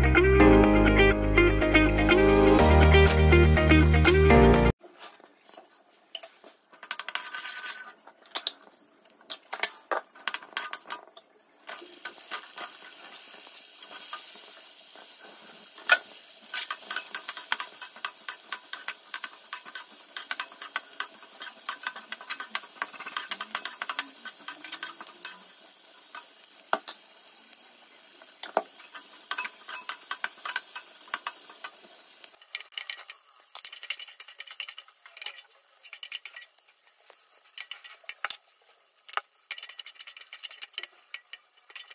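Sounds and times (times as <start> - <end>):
metal spoon scraping a pan: 5.5 - 8.6, 9.3 - 11.0, 15.0 - 26.4, 28.4 - 38.4, 39.1 - 41.9
seeds crackling and popping in oil: 6.6 - 41.9
onions sizzling in a pan: 6.9 - 41.9.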